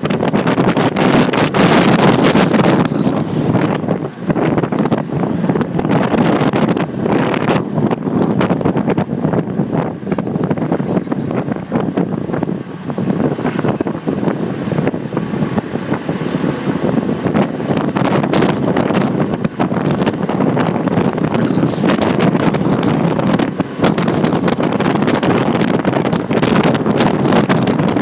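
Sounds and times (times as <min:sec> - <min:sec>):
motorcycle road noise: 0:00.0 - 0:28.0
wind buffeting microphone: 0:00.0 - 0:28.0.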